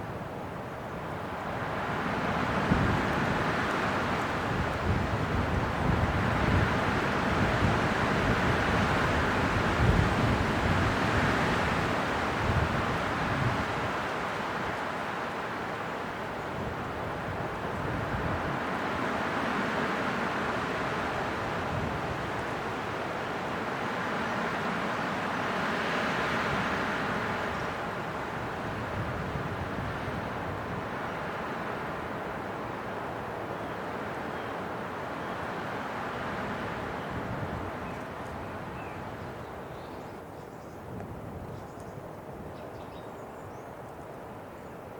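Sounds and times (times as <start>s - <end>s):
wind buffeting microphone: 1.6s - 14.8s, 25.6s - 32.4s, 36.5s - 43.0s.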